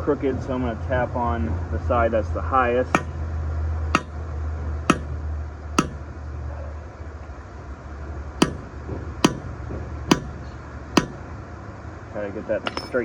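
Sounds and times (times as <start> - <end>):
steady low hum: 1.4 - 13.0
hammer tapping metal: 3.0 - 3.2, 4.0 - 4.2, 4.9 - 6.1, 8.4 - 11.3.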